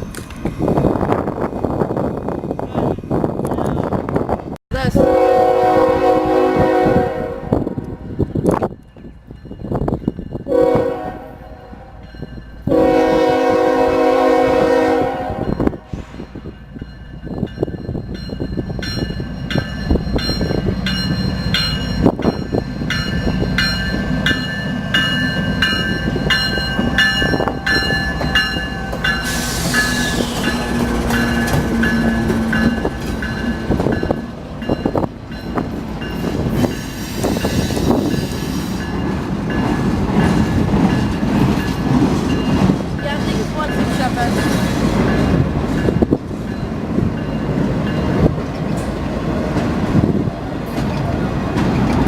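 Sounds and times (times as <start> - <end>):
train rumble: 0.0 - 52.0
train wheels clicking over rail joints: 19.0 - 52.0.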